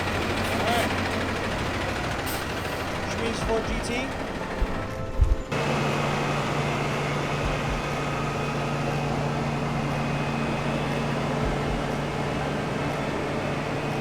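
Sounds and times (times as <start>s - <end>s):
low mechanical hum: 3.4s - 14.0s.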